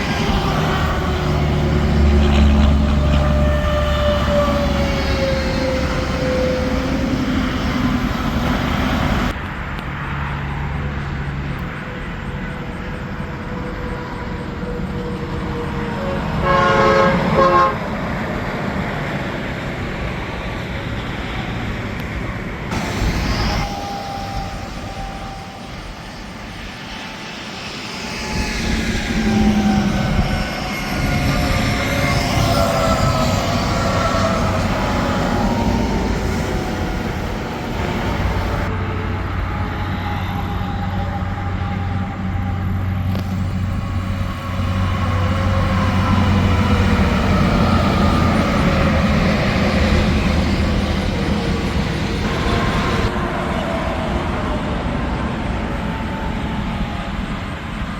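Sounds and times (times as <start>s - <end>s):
highway traffic passing: 0.0s - 56.4s
truck engine drone and tyre noise: 0.0s - 57.9s
vehicle horn: 15.8s - 18.0s.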